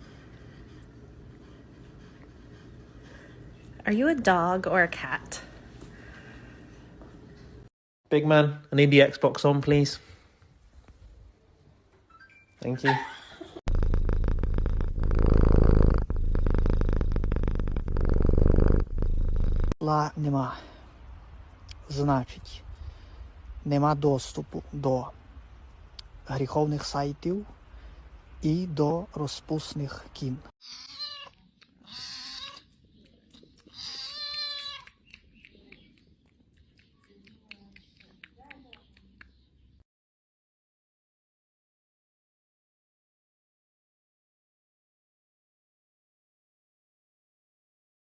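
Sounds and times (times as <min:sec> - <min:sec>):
cat purring: 0:13.7 - 0:19.8
cat meowing: 0:30.6 - 0:32.7, 0:33.6 - 0:35.0.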